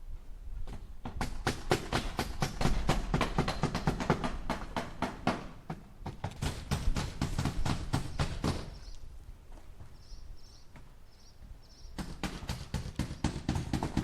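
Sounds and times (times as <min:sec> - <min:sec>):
hammer driving nails into wood: 0:00.7 - 0:08.8, 0:12.0 - 0:14.0.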